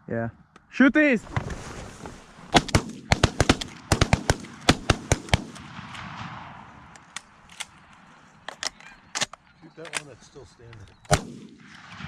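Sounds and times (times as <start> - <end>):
shotgun shots: 2.5 - 10.2, 11.0 - 12.0.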